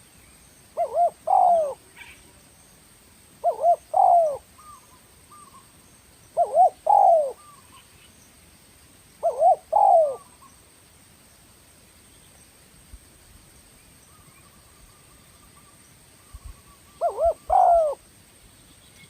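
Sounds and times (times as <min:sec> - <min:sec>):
dove cooing: 0:00.8 - 0:02.2, 0:03.4 - 0:05.6, 0:06.4 - 0:07.8, 0:09.2 - 0:10.4, 0:16.4 - 0:18.0.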